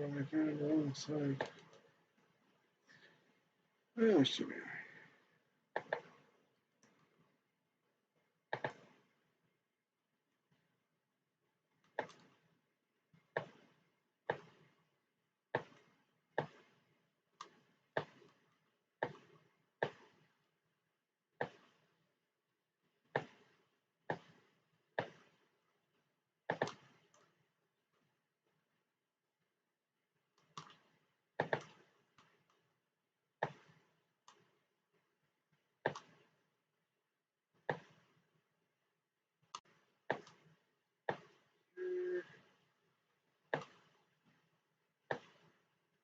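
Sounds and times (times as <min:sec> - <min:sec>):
computer mouse clicking: 0:05.7 - 0:06.2, 0:08.5 - 0:08.9, 0:11.8 - 0:12.5, 0:17.4 - 0:18.4, 0:26.5 - 0:27.3, 0:30.4 - 0:32.7, 0:35.8 - 0:36.3, 0:39.5 - 0:40.5.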